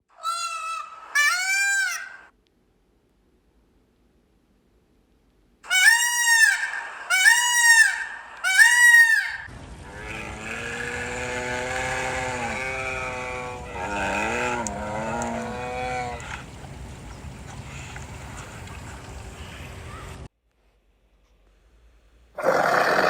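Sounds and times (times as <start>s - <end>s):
loud rising and falling animal calls: 0.1s - 2.3s, 5.7s - 16.5s, 22.4s - 23.0s
low drawn-out animal call: 0.1s - 2.3s, 5.7s - 16.6s, 22.4s - 23.0s.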